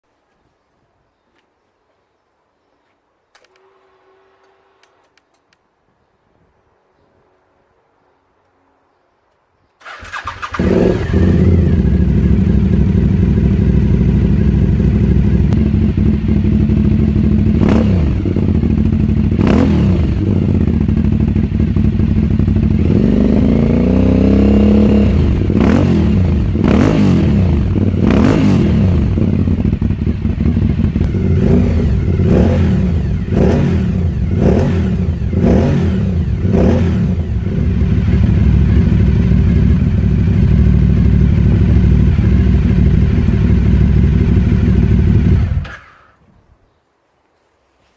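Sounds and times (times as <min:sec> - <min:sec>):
motorcycle engine idling and revving: 0:09.8 - 0:46.2.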